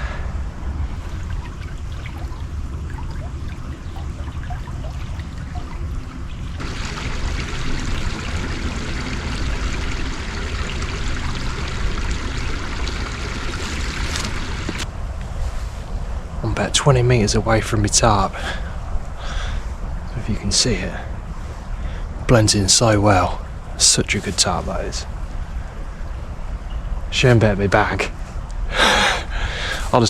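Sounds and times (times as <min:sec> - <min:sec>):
low rumble: 0:00.4 - 0:12.7
stream running and trickling: 0:00.7 - 0:14.9.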